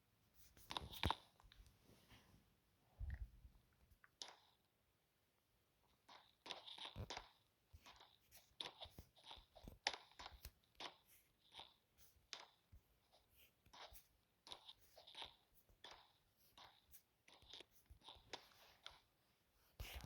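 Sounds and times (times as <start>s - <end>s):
faint crunching and clicking: 3.0s - 4.7s, 5.8s - 19.2s.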